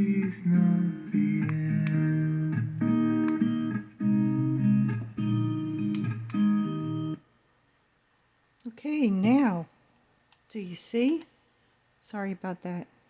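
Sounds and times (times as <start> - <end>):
guitar strumming chords: 0.0 - 7.2.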